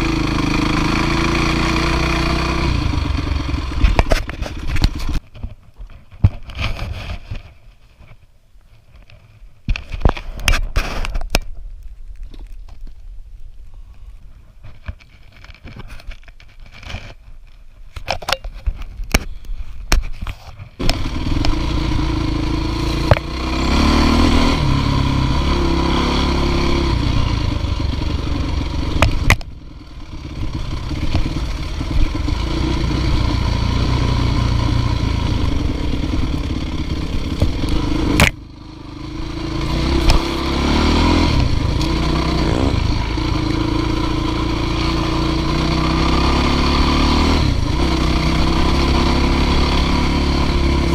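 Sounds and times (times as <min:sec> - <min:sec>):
dirt bike engine revving: 0:00.0 - 0:04.0, 0:20.8 - 0:50.9.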